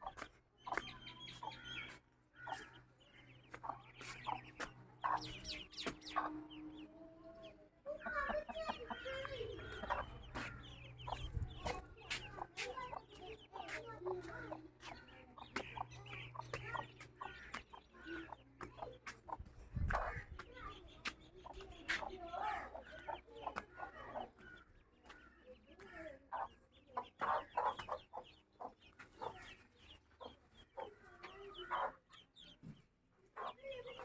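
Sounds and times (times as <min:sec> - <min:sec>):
chicks peeping: 0:00.0 - 0:34.0
hen clucking: 0:03.5 - 0:06.8, 0:07.9 - 0:34.0.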